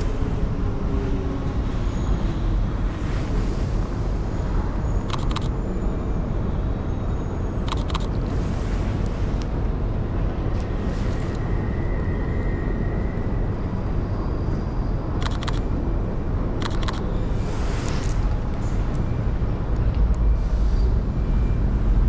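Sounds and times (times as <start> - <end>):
quick clicks: 5.1 - 5.5, 7.7 - 8.1, 15.2 - 15.6, 16.6 - 17.0.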